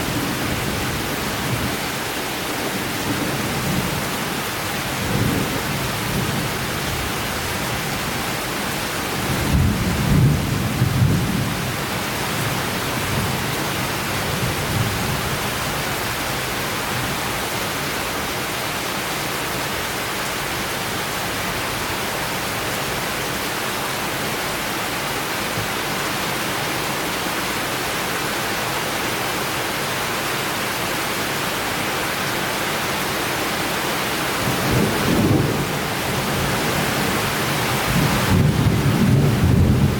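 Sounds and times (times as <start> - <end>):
heavy rain falling: 0.0 - 39.9
thunder rumbling: 34.4 - 39.9.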